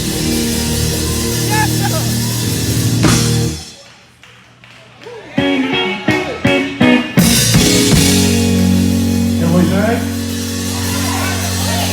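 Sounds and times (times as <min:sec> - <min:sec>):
live band music: 0:00.0 - 0:03.9, 0:05.3 - 0:11.9
guitar chord stabs: 0:05.7 - 0:11.9.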